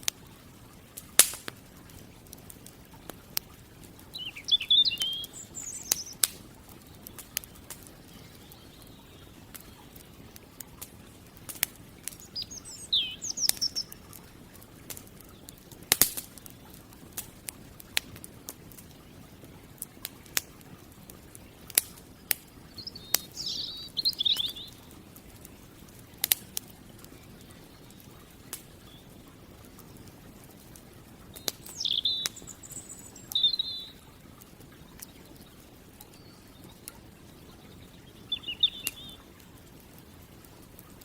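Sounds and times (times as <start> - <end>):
campfire crackling and popping: 0.0 - 41.0
songbird chirping: 3.5 - 16.9, 22.4 - 25.6, 27.0 - 30.0, 31.2 - 39.4.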